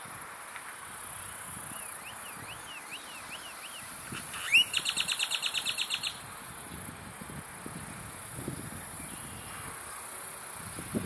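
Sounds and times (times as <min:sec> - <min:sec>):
steady high hiss: 0:00.0 - 0:11.0
birds singing: 0:01.7 - 0:06.2
fast bird trill: 0:01.7 - 0:06.2.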